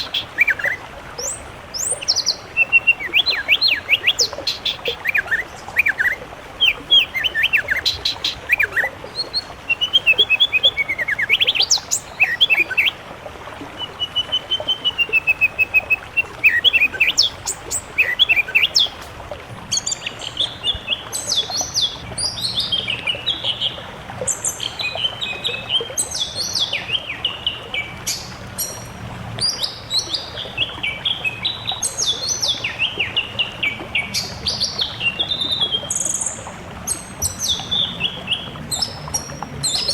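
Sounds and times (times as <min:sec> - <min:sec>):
songbird whistles and warbles: 0:00.0 - 0:13.0, 0:13.8 - 0:19.1.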